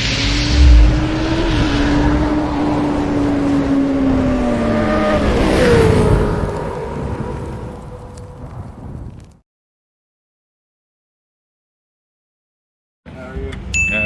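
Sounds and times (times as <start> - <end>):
second engine note sliding down: 0.0 - 2.8.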